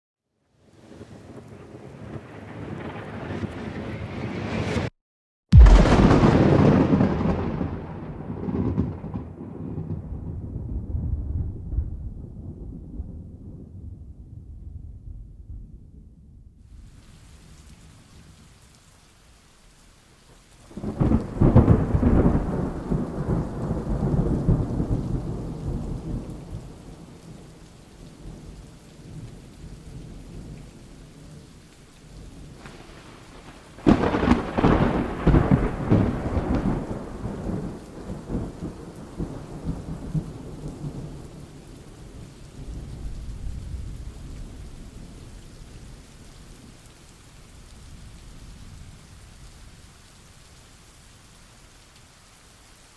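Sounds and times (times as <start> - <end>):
steady rain: 0.4 - 4.9, 5.6 - 13.8, 16.7 - 52.9
thunderclaps rolling: 1.1 - 4.9, 5.6 - 16.0, 20.7 - 27.2, 32.4 - 45.2.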